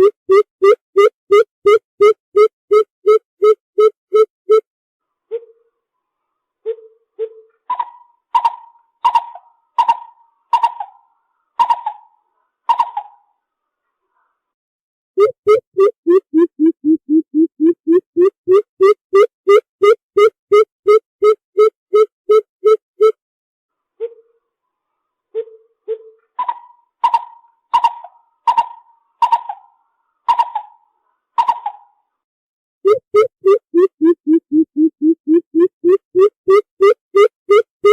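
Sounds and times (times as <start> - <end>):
bird calling hollow notes: 0.0 - 4.6, 15.2 - 23.2, 32.9 - 37.9.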